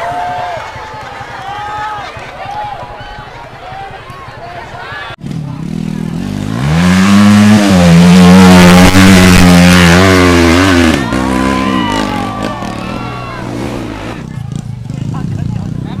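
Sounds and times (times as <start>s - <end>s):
people shouting: 0.0s - 5.2s, 8.9s - 14.2s
motorcycle engine revving: 5.2s - 16.0s.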